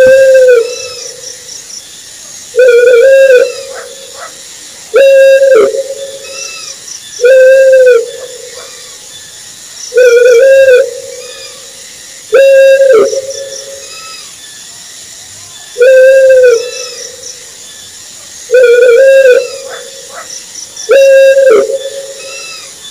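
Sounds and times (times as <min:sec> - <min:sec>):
owl hooting: 0:00.0 - 0:01.3, 0:02.6 - 0:09.0, 0:09.9 - 0:11.7, 0:12.3 - 0:14.3, 0:15.8 - 0:17.2, 0:18.5 - 0:22.8.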